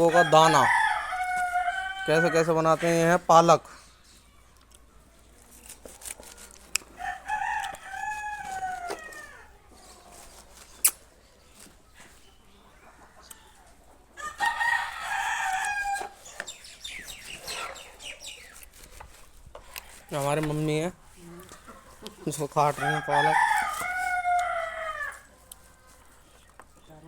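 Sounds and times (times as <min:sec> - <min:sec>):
rooster crowing: 0:00.0 - 0:03.0, 0:07.0 - 0:09.5, 0:14.2 - 0:16.2, 0:22.7 - 0:25.3.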